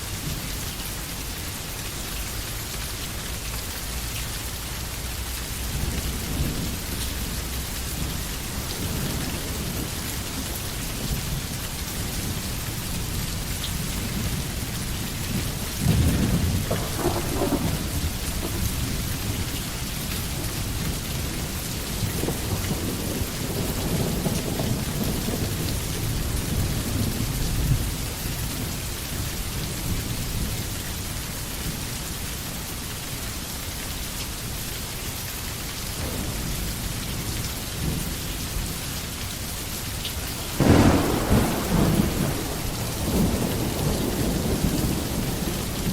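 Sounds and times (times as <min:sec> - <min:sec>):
rain falling: 0:00.0 - 0:45.9
low thunder rumble: 0:05.2 - 0:29.0, 0:36.0 - 0:39.5, 0:40.3 - 0:45.9
thunder clap: 0:15.4 - 0:19.4, 0:36.0 - 0:38.7, 0:40.4 - 0:45.9.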